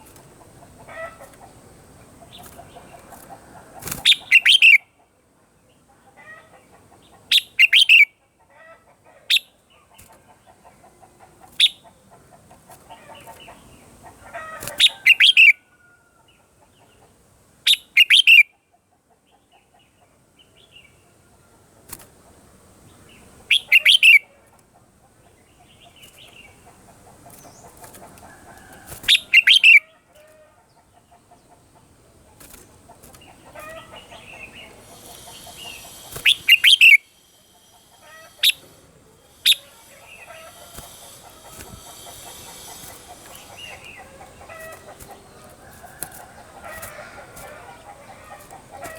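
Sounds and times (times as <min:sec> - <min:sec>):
bulbul singing: 0:03.9 - 0:04.8, 0:29.0 - 0:29.8, 0:32.5 - 0:48.9.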